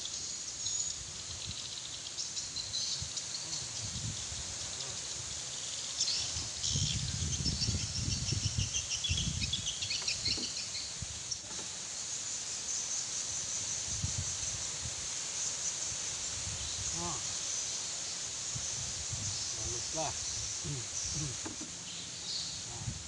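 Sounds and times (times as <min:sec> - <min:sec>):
insects chirping: 0:00.0 - 0:23.0
wind buffeting microphone: 0:03.0 - 0:04.7, 0:06.2 - 0:11.2, 0:18.5 - 0:21.4, 0:22.7 - 0:23.0.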